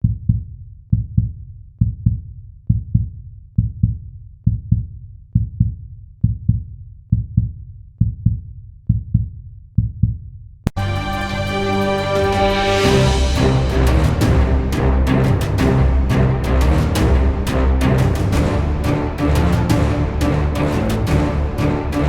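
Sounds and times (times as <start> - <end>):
heartbeat thumps: 0.0 - 10.3
music: 10.7 - 22.0.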